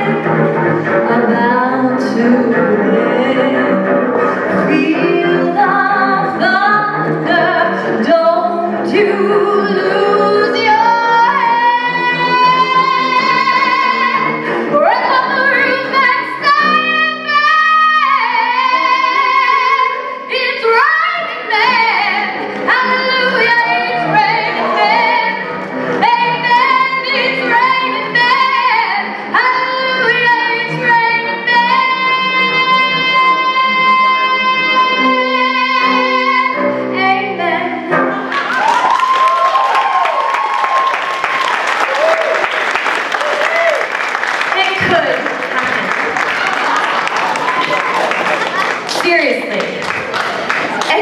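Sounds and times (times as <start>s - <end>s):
cello: 0.0s - 38.4s
woman singing: 1.1s - 3.9s, 4.6s - 38.0s.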